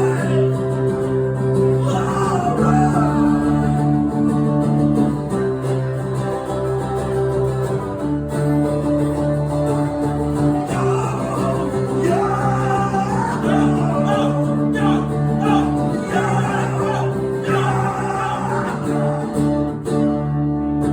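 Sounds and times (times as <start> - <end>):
person singing: 0.0 - 0.6, 1.7 - 4.0, 10.7 - 19.4
acoustic guitar chords: 0.0 - 20.9.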